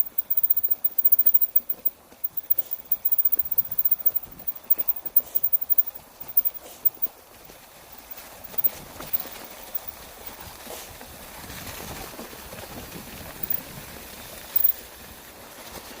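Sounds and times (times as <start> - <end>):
steady rustling: 0.0 - 10.0.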